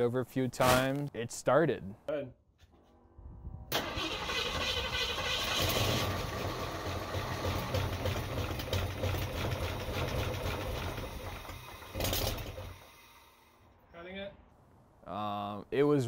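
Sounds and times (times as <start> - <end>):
engine running rough: 3.8 - 12.8.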